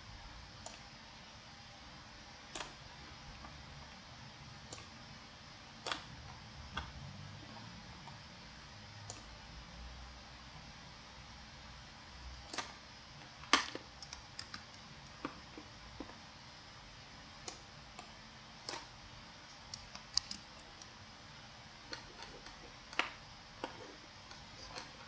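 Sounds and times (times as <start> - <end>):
faint room hiss: 0.0 - 25.0
computer mouse clicking: 0.6 - 0.9, 2.5 - 2.8, 4.7 - 5.0, 5.8 - 7.0, 9.0 - 9.4, 12.5 - 12.8, 13.5 - 16.2, 17.4 - 21.0, 21.8 - 25.0.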